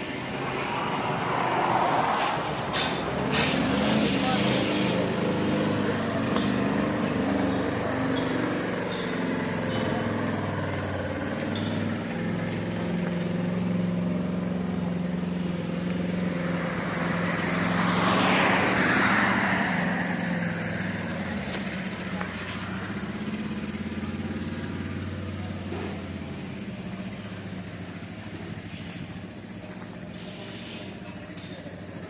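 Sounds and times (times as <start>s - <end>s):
constant high hiss: 19.8s - 32.0s.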